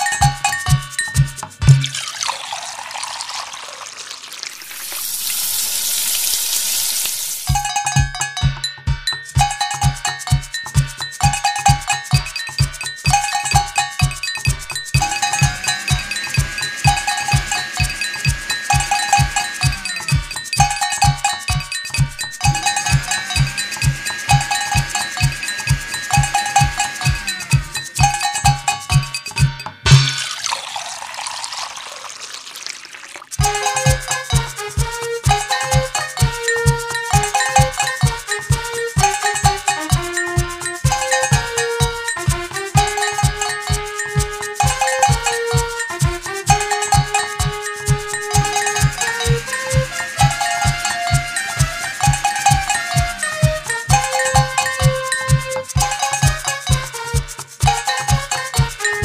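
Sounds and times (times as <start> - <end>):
held tone: 0.0 - 8.4, 9.3 - 56.9, 57.6 - 59.0
sizzling hiss: 2.1 - 7.6, 29.9 - 33.7
low beat: 7.4 - 30.2
metallic bell-like strikes: 7.4 - 30.4.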